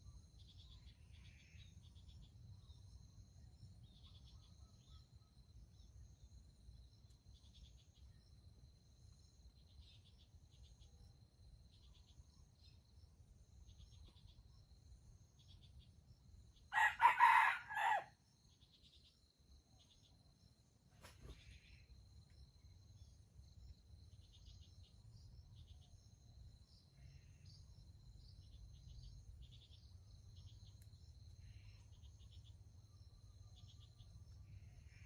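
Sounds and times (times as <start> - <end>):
rooster crowing: 16.7 - 18.1.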